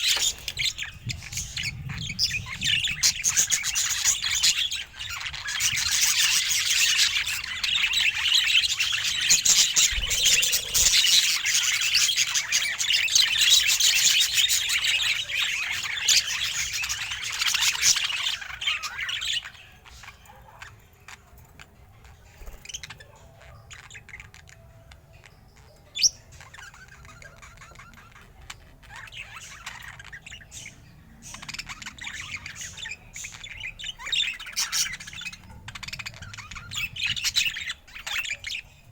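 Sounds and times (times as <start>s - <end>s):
budgerigar chattering and chirping: 22.2s - 38.9s.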